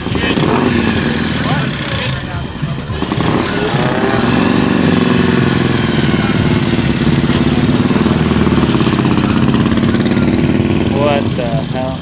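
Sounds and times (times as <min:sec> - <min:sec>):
car engine running loudly: 0:00.0 - 0:12.0.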